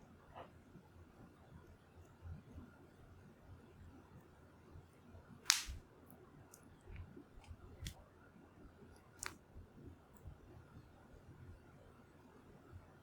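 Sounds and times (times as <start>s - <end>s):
wood fire crackling: 5.5s - 5.8s.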